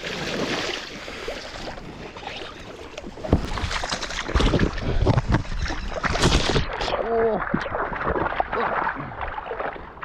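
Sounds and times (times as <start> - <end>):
fish thrashing and splashing: 3.2 - 10.0.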